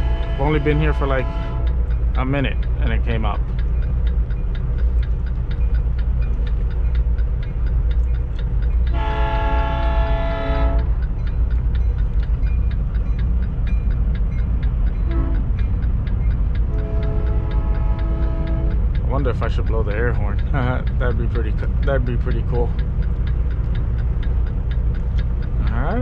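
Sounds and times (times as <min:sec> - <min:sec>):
train horn blasts: 0:00.0 - 0:01.8, 0:08.8 - 0:11.0, 0:15.0 - 0:15.6, 0:16.6 - 0:18.8
fast even ticking: 0:00.0 - 0:26.0
low rumble: 0:00.0 - 0:26.0.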